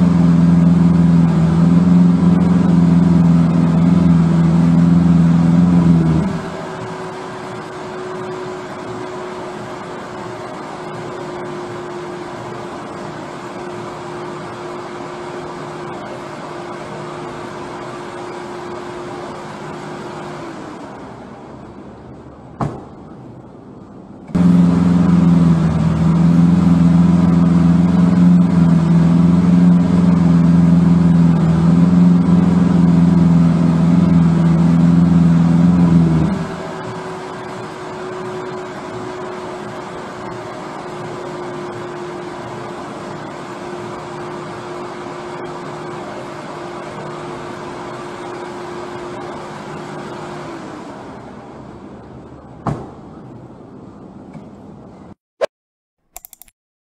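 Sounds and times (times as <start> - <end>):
vehicle engine idling: 23.3 - 36.6
sharp click: 56.1 - 56.5.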